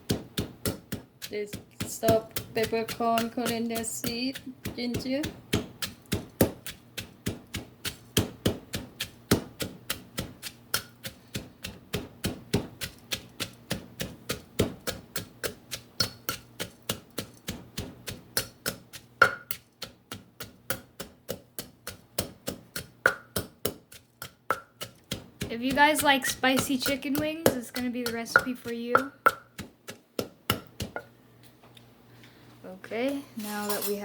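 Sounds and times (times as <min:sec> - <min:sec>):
pestle pounding in mortar: 0:00.0 - 0:31.1.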